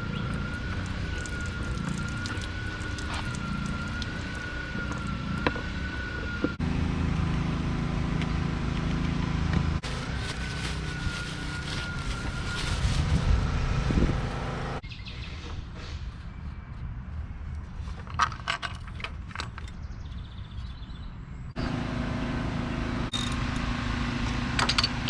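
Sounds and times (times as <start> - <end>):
thin wavering whine: 0.0 - 6.6, 9.8 - 14.4
mower engine running: 0.0 - 14.8, 21.6 - 25.0.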